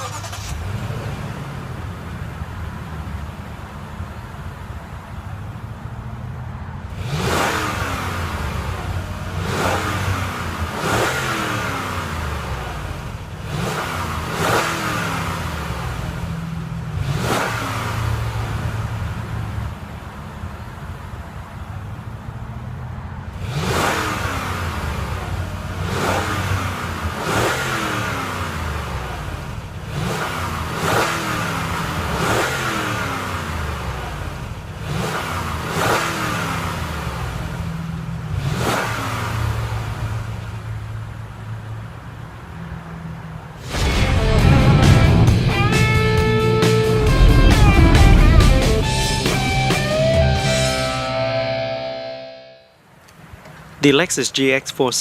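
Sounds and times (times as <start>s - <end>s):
car engine idling: 0.0s - 52.2s
car engine revving: 0.0s - 54.9s.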